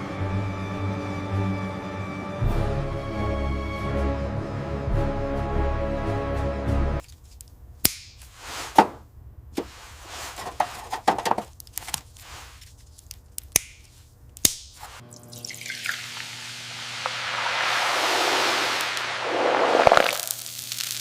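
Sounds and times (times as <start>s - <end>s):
background music: 0.0s - 7.0s
scraping swishes: 8.3s - 9.0s.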